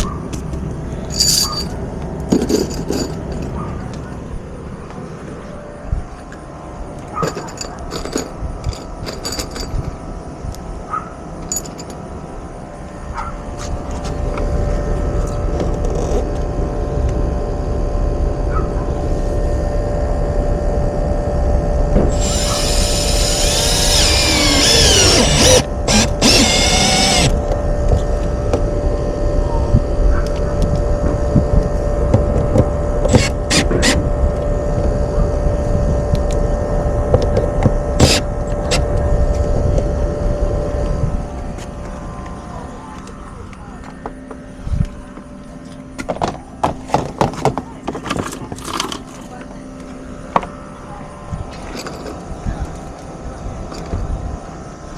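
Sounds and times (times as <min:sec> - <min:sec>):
steady hum and low rumble: 0:00.0 - 0:54.9
power drill running: 0:22.1 - 0:27.6, 0:33.1 - 0:34.1, 0:38.0 - 0:38.9.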